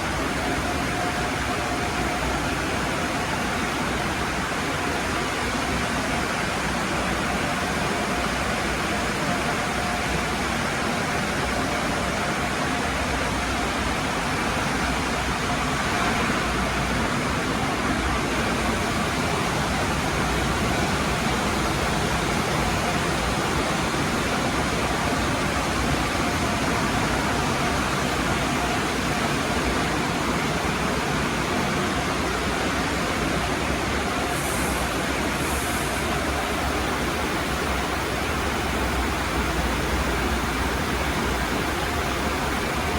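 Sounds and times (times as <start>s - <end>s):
car wash spraying water: 32.3s - 42.9s.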